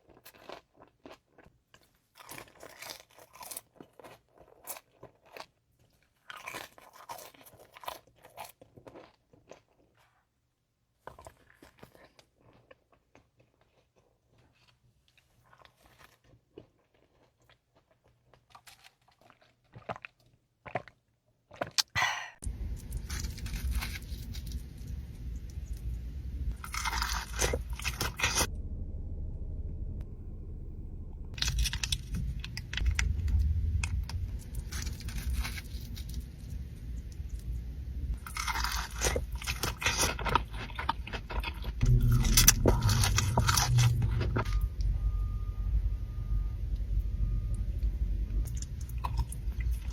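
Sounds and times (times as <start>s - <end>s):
crunching and chewing fried food: 0.0s - 28.5s, 31.3s - 49.9s
low background hum: 22.0s - 49.9s.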